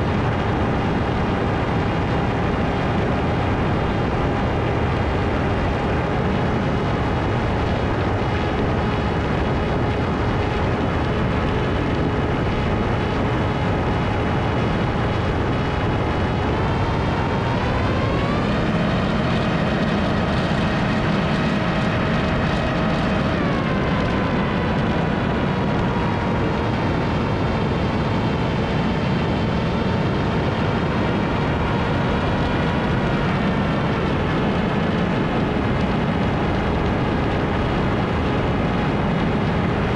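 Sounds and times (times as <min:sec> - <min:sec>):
electric motor and propeller whine: 0:00.0 - 0:39.9
rush of wind: 0:00.0 - 0:39.9.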